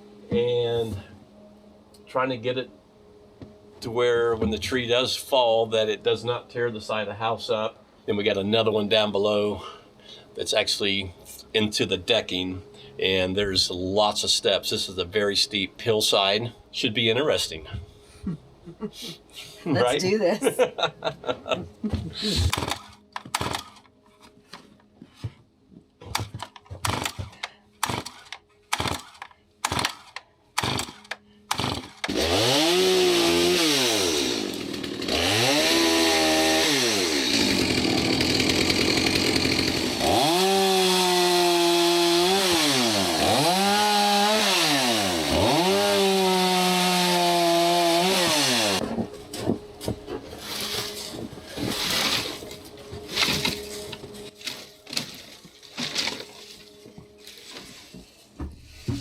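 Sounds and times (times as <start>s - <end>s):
chainsaw revving cutting branches: 22.2s - 23.9s, 26.8s - 48.8s, 50.4s - 57.6s.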